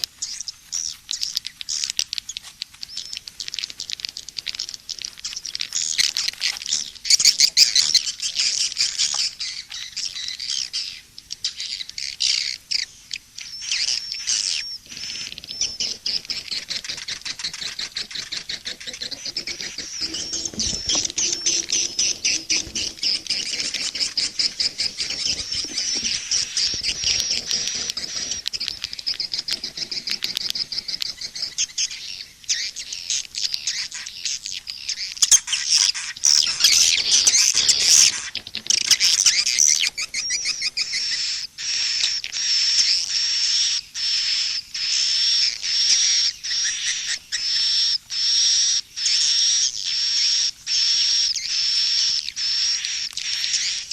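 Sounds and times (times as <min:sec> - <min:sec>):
swiftlets twittering and chirping: 0:00.0 - 0:43.0.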